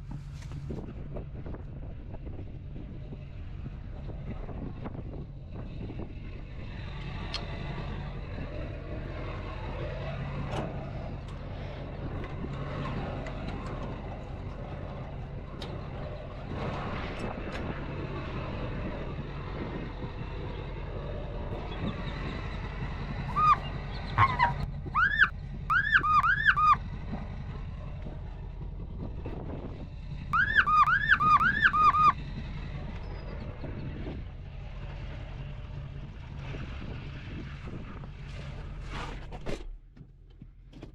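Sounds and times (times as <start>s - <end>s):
vehicle engine humming: 0.0s - 39.1s
loud squeaky rising tones: 23.3s - 26.8s, 30.4s - 32.2s.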